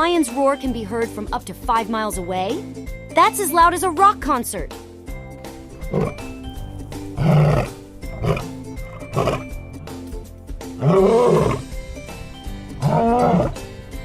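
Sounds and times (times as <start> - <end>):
cheerful background music: 0.0 - 14.0
lion grunts: 5.8 - 6.4, 7.0 - 9.6, 10.8 - 11.7, 12.8 - 13.6
lion roaring: 5.8 - 6.4, 7.0 - 9.9, 10.8 - 11.7, 12.8 - 13.6.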